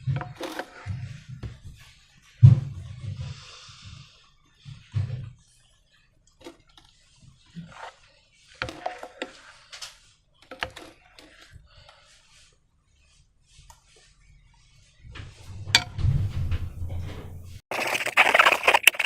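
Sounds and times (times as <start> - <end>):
thud: 15.1 - 17.6.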